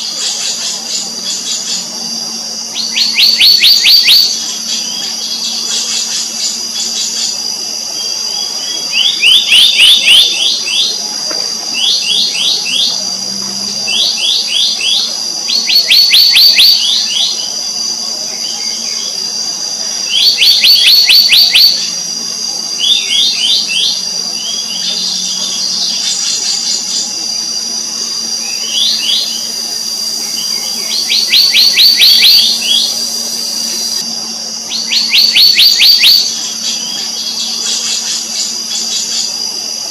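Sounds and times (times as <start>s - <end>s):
high-pitched whine: 0.0s - 39.9s
birds whistling downward notes: 2.8s - 6.1s, 28.2s - 34.0s, 34.7s - 37.7s.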